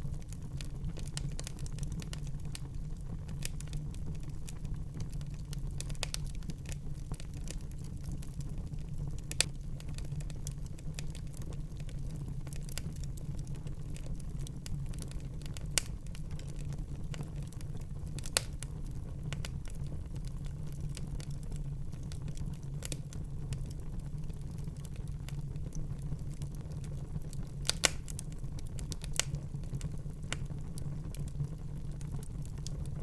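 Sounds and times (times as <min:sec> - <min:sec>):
wood fire crackling: 0:00.0 - 0:33.0
loud fire pops: 0:27.5 - 0:30.6.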